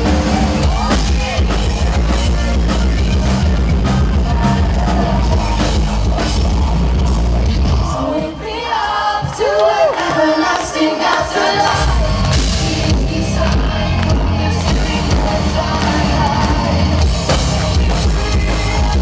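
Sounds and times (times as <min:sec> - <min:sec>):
live metal band playing: 0:00.0 - 0:07.9, 0:11.6 - 0:19.0
person singing: 0:07.7 - 0:19.0.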